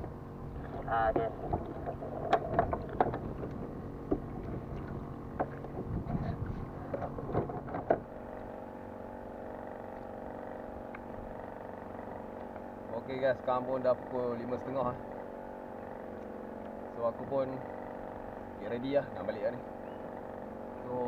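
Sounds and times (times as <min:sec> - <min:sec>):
steady even hum: 0:00.0 - 0:21.0
knocks and clicks on kayak hull: 0:01.1 - 0:08.2.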